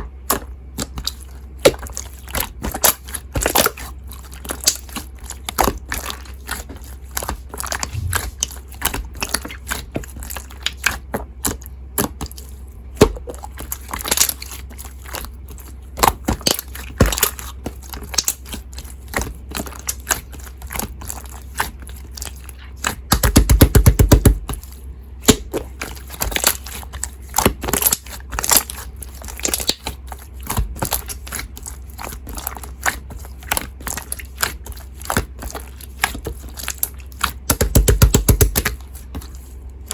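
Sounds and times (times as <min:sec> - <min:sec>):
slime squishing: 0:00.0 - 0:39.9
slime popping and crackling: 0:36.7 - 0:38.8.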